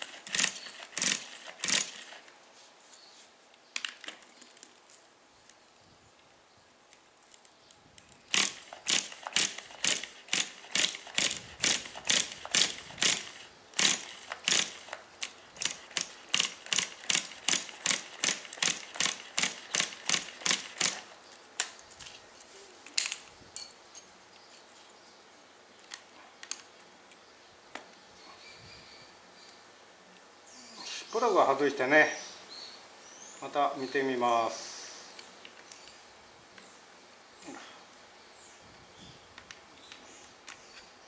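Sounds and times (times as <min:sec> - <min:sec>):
ratchet tool clicking: 0:00.3 - 0:02.1, 0:08.3 - 0:15.0, 0:15.6 - 0:21.0.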